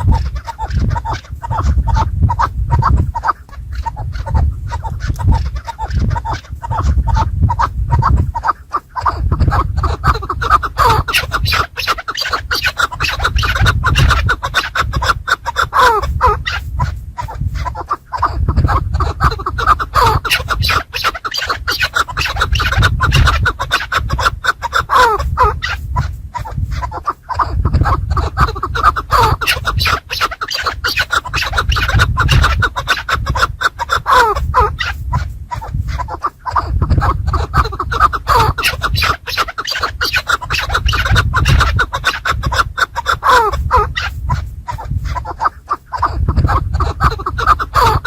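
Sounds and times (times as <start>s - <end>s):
partridge calling: 0.0s - 48.0s
scratching and rustling: 0.0s - 48.0s.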